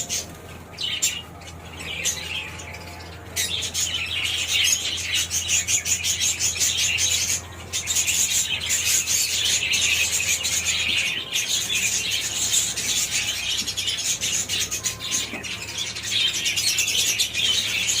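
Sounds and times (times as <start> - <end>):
parrots chattering and chirping: 0.0 - 18.0.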